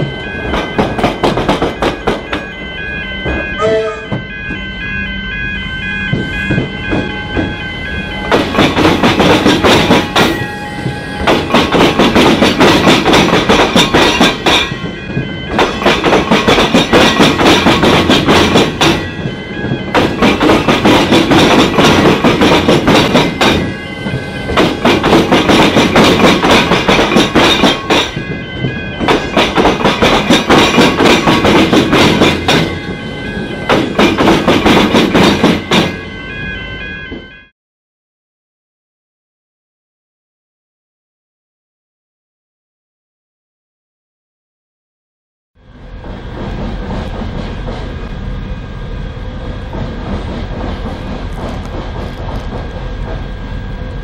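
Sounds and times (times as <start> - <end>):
train wheels clattering over crossing: 0.0 - 4.6, 6.0 - 36.1, 46.0 - 48.2, 49.4 - 53.5
level-crossing warning bells: 0.0 - 37.5, 45.6 - 54.0.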